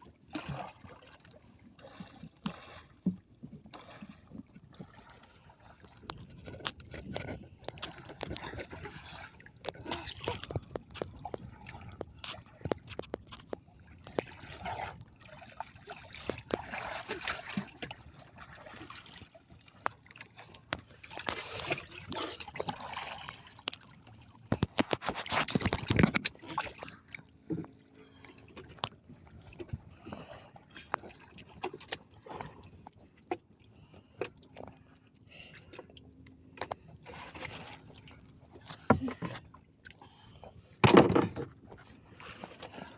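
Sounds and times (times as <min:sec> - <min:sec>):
water splashing and sloshing: 0:00.0 - 0:42.9
small knocks and clatters: 0:10.4 - 0:14.3, 0:24.4 - 0:26.4, 0:40.8 - 0:41.8.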